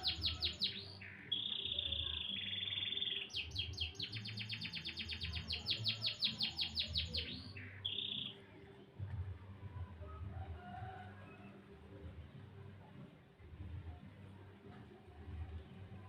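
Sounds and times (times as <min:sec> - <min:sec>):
canary trilling: 0:00.0 - 0:08.4.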